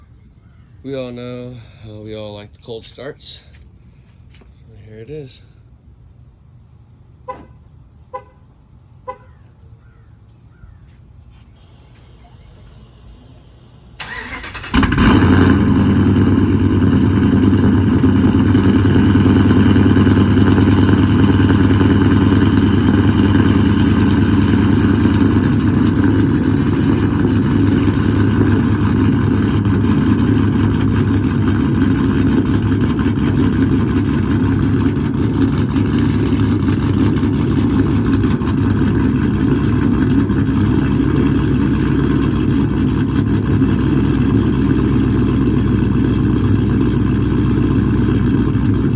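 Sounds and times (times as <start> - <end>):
loud engine idling: 1.0 - 4.0, 9.0 - 48.9
starter motor cranking: 11.6 - 15.5.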